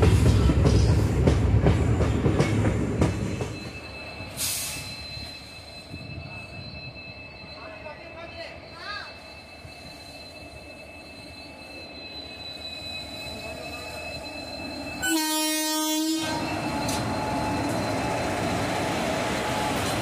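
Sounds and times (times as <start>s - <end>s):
train wheels rumbling: 0.0s - 7.8s
train horn: 15.0s - 16.5s.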